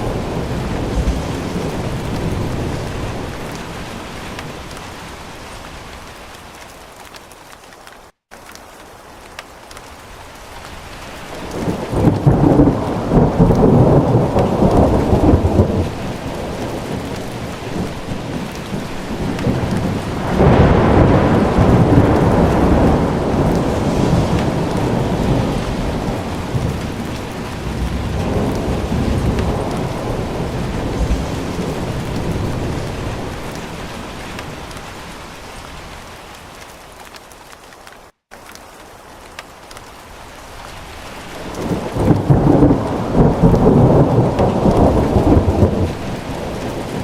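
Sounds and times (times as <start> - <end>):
thunder rumbling: 0.0 - 5.0, 11.3 - 35.2, 41.3 - 47.0
steady rain: 0.0 - 47.0.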